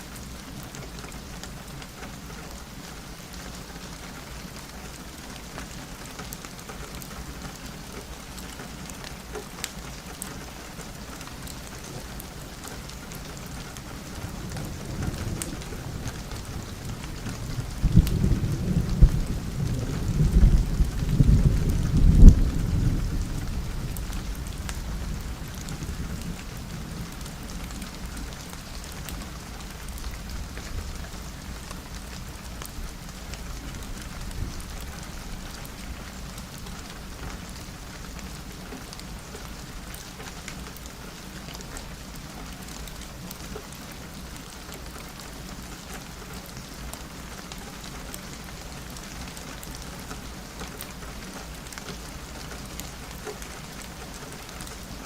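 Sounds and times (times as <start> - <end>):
rain pattering on window glass: 0.0 - 55.0
thunder rumble: 13.5 - 36.2.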